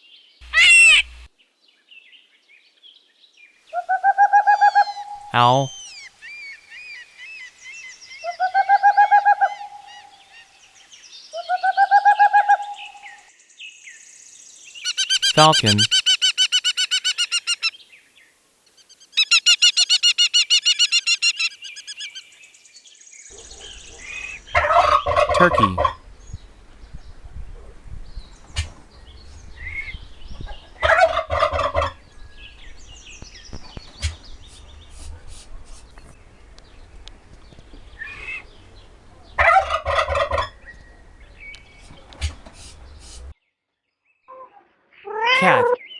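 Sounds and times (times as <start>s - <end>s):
small birds chirping: 13.6s - 22.8s
owl trilled hoots: 14.8s - 17.7s, 19.2s - 22.2s
turkey short calls: 14.8s - 17.7s, 19.2s - 22.2s.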